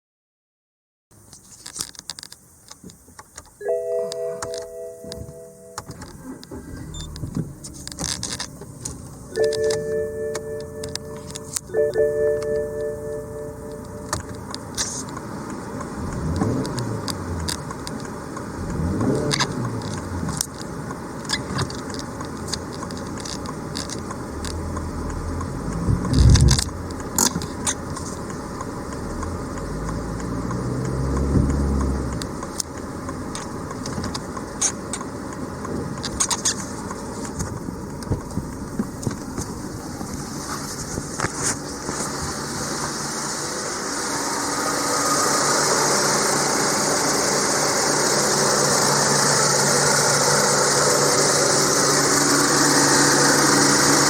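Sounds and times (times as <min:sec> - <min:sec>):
clicks and rattles on a car: 0:05.8 - 0:09.7, 0:14.2 - 0:42.3.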